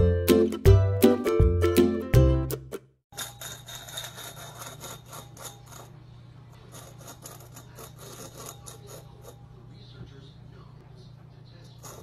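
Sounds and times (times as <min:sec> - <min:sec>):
cat scraping at a bowl: 0:03.2 - 0:09.6, 0:11.6 - 0:12.0.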